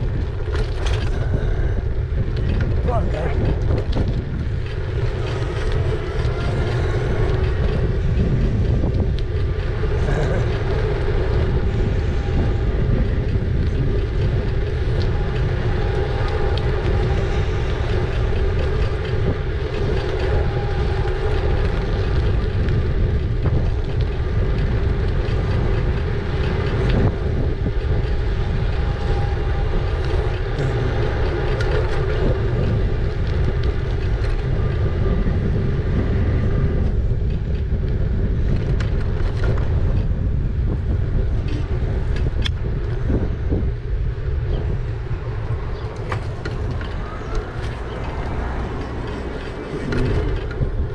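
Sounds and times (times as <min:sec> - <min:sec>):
tyres on road: 0:00.0 - 0:50.9
wind on microphone: 0:00.0 - 0:50.9.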